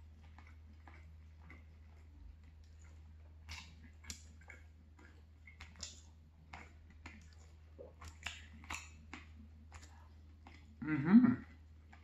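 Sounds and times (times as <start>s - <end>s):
wet chewing and mouth smacks: 0.0s - 12.0s.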